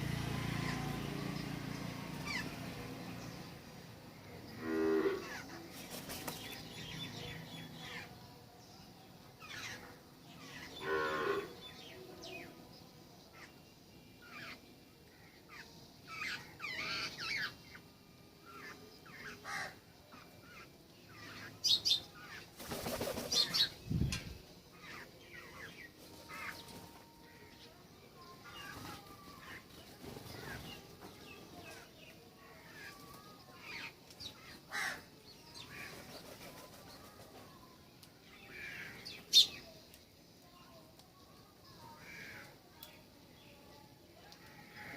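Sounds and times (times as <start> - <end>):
birds chirping: 0.0 - 44.9
wings flapping: 5.7 - 6.6, 22.5 - 23.7, 35.8 - 37.4.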